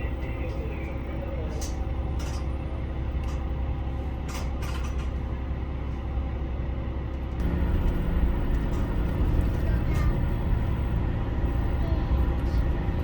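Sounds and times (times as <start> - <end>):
diesel railcar engine humming: 0.0 - 13.0.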